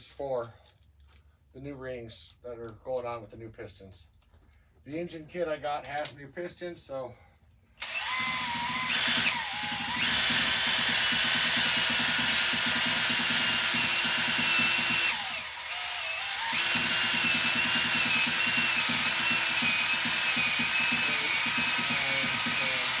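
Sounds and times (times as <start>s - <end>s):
drill motor whine: 7.8s - 23.0s.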